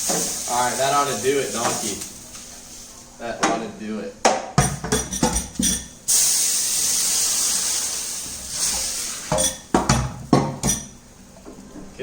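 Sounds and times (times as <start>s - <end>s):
steak sizzling in frying pan: 0.0s - 3.0s, 6.0s - 9.7s
metal utensil clinking on pan: 10.5s - 10.9s.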